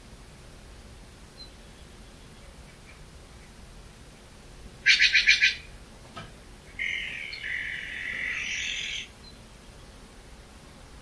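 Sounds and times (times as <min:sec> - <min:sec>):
bird calling: 0:04.8 - 0:05.8, 0:06.7 - 0:10.0.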